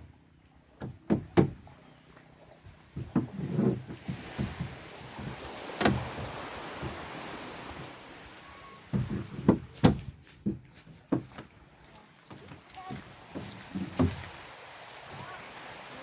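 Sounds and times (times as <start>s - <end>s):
knocks and thuds: 0.8s - 1.6s, 8.9s - 11.5s, 12.9s - 14.3s.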